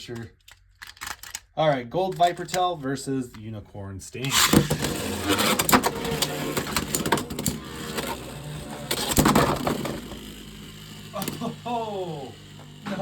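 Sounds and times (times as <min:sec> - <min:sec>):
steady spinning hum: 0:04.9 - 0:13.0.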